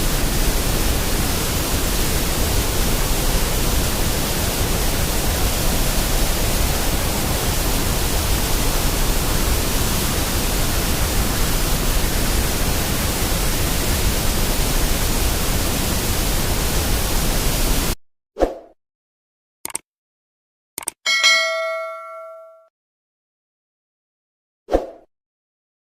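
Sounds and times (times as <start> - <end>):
white noise hiss: 0.0 - 18.0.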